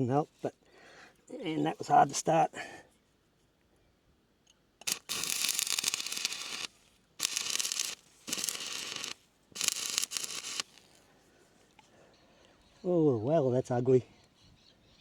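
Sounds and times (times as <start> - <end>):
welding arc crackling: 4.8 - 11.0.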